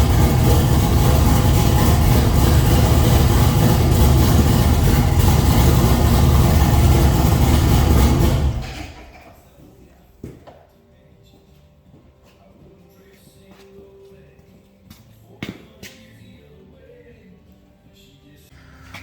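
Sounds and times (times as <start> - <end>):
race car engine idling: 0.0 - 9.6.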